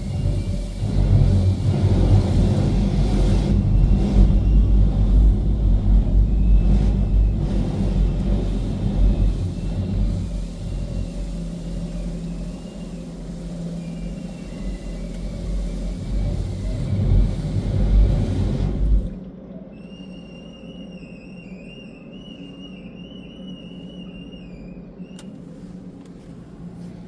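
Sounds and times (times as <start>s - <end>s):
car wash rumbling and rushing: 0.0s - 20.8s, 22.5s - 27.0s
thin wavering high whine: 0.0s - 26.9s.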